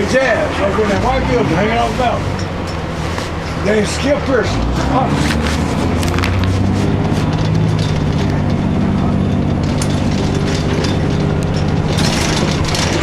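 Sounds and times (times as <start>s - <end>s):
bus diesel engine running: 0.0s - 13.0s
light rattles and clicks: 5.2s - 13.0s.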